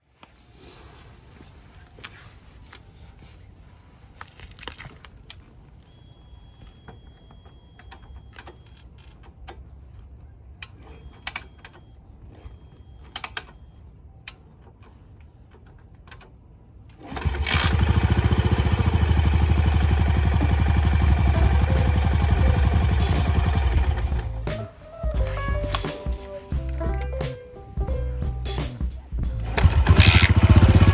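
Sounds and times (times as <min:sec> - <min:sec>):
motorcycle engine running: 0:17.1 - 0:24.5, 0:29.3 - 0:30.9.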